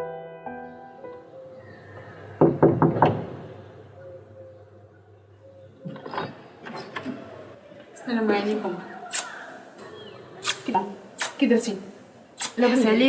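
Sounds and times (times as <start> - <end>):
loud knocks on a door: 2.4 - 3.4.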